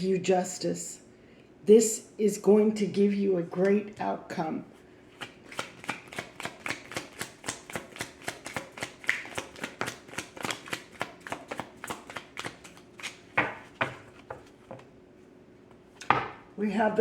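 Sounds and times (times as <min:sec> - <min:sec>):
cards being shuffled: 0:05.2 - 0:14.8.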